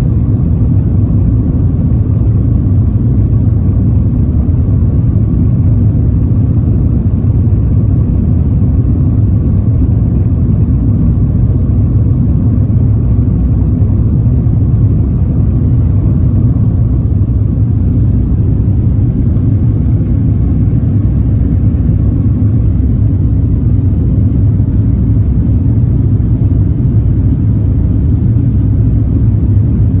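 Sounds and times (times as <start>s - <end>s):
airplane cabin rumble: 0.0s - 30.0s.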